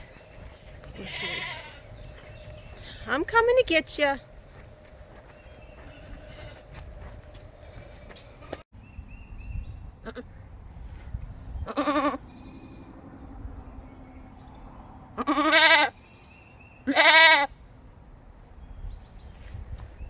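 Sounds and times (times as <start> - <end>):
goats bleating: 1.0 - 2.0, 5.9 - 6.7, 11.7 - 12.9, 15.2 - 16.0, 16.9 - 17.5.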